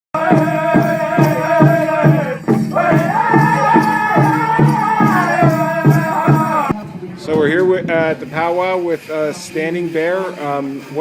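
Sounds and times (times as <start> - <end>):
group singing high-pitched: 0.2 - 6.8
large drum beating: 0.2 - 6.8.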